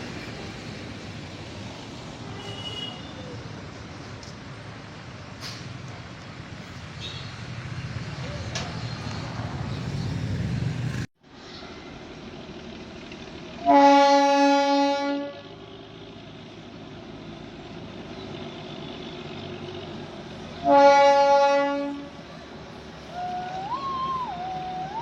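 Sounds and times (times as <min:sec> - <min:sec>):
locomotive horn blasts: 0:02.4 - 0:03.1, 0:13.6 - 0:15.6, 0:20.6 - 0:22.2.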